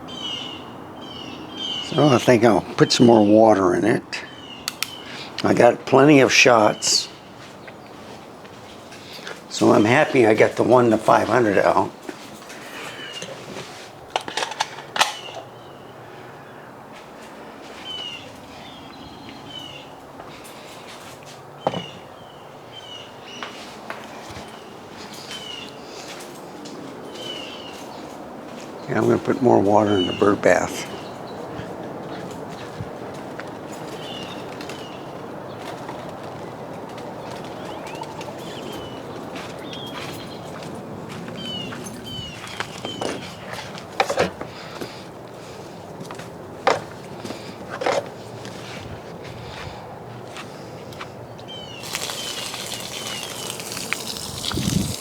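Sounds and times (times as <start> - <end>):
small birds chirping: 0.0 - 3.2, 3.8 - 5.7, 21.6 - 26.3, 27.0 - 32.8, 37.2 - 40.6, 51.4 - 55.0
sharp clicks: 4.6 - 5.0.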